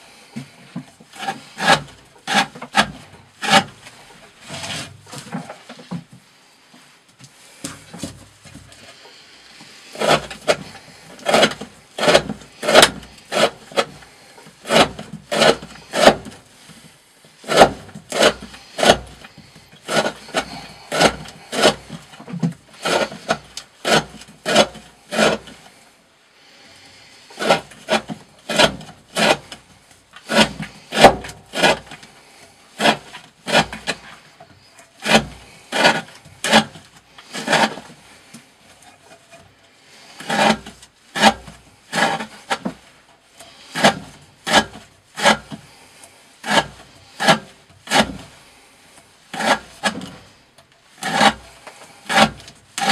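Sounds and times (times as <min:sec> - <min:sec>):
knife slicing through rope: 0:09.9 - 0:14.0, 0:14.6 - 0:16.4, 0:17.4 - 0:19.3, 0:19.9 - 0:22.1, 0:22.8 - 0:25.6, 0:27.4 - 0:29.6, 0:30.2 - 0:32.0, 0:32.8 - 0:34.1, 0:35.0 - 0:37.9, 0:40.2 - 0:42.8, 0:51.0 - 0:51.4, 0:52.0 - 0:52.9.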